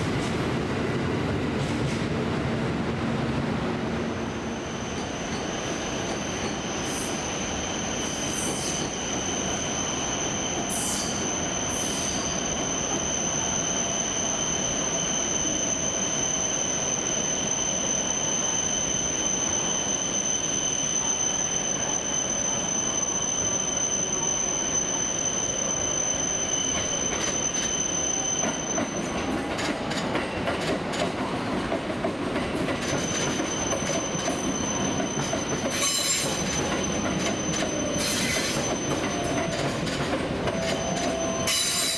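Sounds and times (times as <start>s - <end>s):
train wheels squealing: 4.0s - 41.9s
rumble of train running gear: 28.4s - 41.9s.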